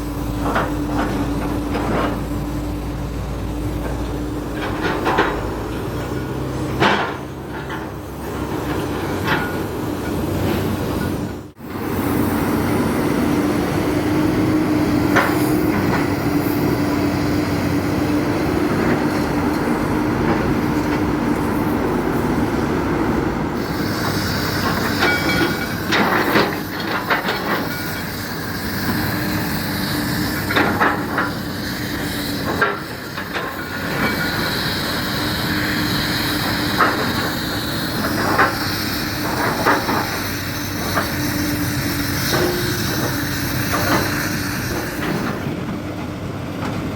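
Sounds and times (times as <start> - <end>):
excavator engine running: 0.0 - 46.9
hydraulic hiss: 11.6 - 45.5.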